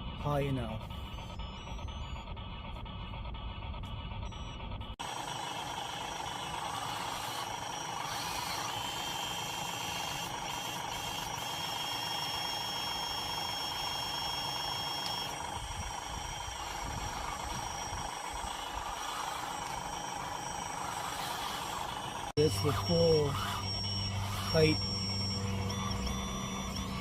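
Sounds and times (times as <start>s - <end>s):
hydraulic pump whine: 0.0s - 27.0s
higher thin whine: 7.8s - 27.0s.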